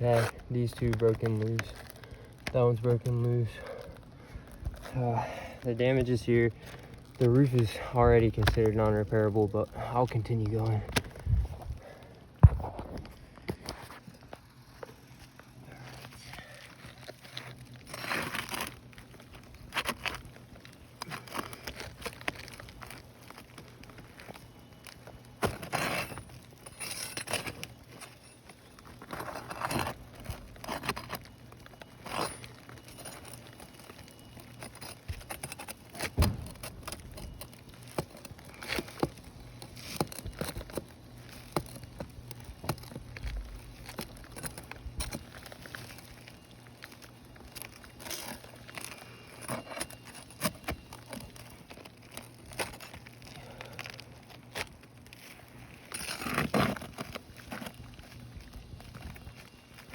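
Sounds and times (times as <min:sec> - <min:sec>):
flat bar scraping under shingles: 0:00.0 - 0:01.8, 0:12.7 - 0:20.3, 0:25.4 - 0:31.4, 0:55.3 - 0:57.8
shingles cracking and tearing: 0:00.0 - 0:59.9.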